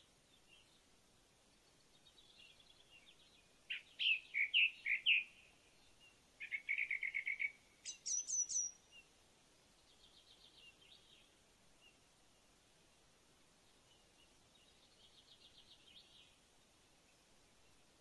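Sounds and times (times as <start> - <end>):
bird singing: 1.6 - 9.1
faint bird chattering: 6.4 - 8.7.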